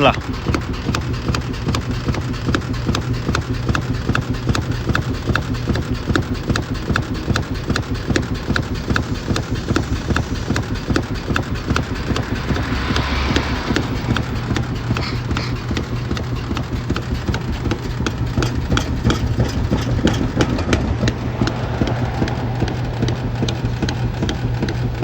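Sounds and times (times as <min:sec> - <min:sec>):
low motor hum: 0:00.0 - 0:25.0
washing machine clicking knock: 0:15.3 - 0:21.7.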